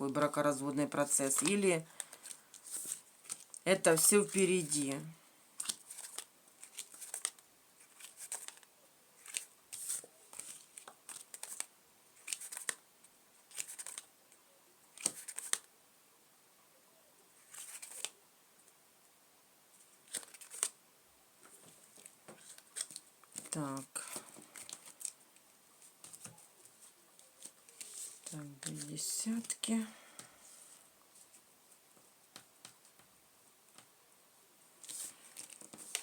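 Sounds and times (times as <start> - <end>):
playing cards shuffling: 1.3 - 4.8, 5.6 - 12.8, 13.4 - 14.1, 14.9 - 15.7, 17.4 - 18.2, 20.0 - 20.8, 21.4 - 25.2, 25.8 - 29.6, 34.8 - 36.0.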